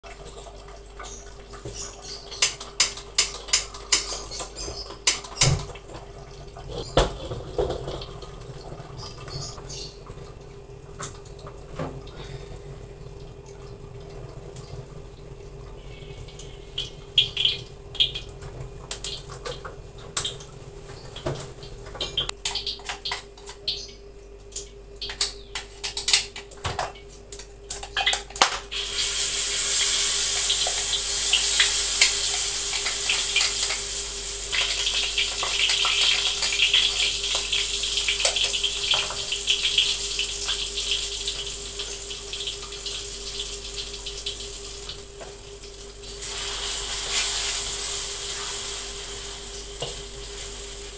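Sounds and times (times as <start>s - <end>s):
hot oil crackling and popping: 1.0s - 10.3s, 16.3s - 50.9s
paste sizzling in oil: 28.7s - 42.1s, 46.2s - 50.9s.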